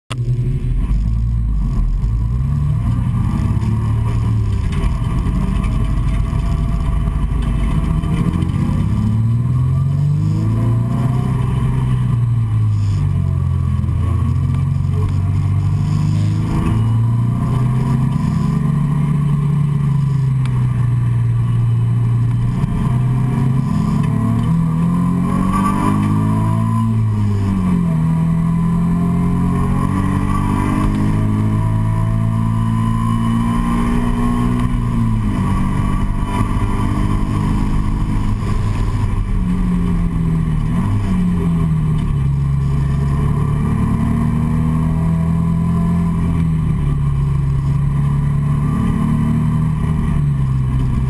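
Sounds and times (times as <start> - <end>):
car engine accelerating: 0.1 - 51.0.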